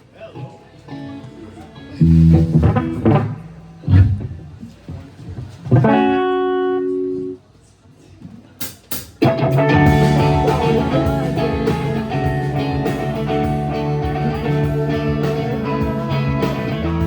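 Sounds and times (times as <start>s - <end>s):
live band with guitar: 0.0s - 7.4s, 8.6s - 17.0s
sharp hits: 2.2s - 4.8s.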